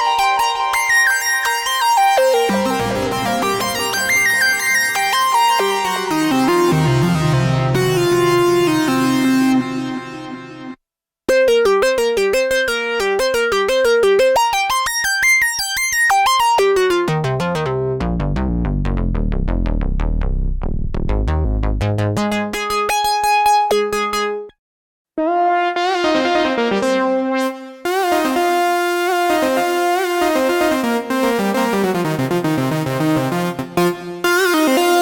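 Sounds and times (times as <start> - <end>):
synthesizer playing: 2.2 - 10.8.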